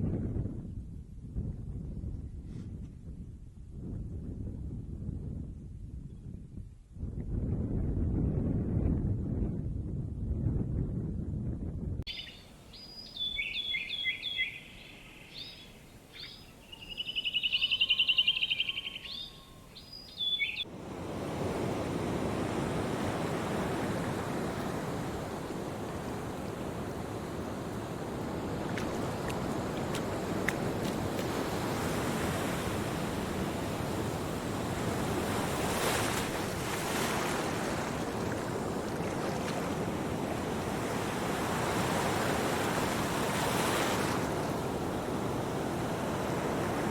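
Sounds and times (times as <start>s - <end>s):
birds chirping: 12.1s - 20.7s
loud bird trill: 12.1s - 20.7s
ocean surf rushing: 20.6s - 46.9s.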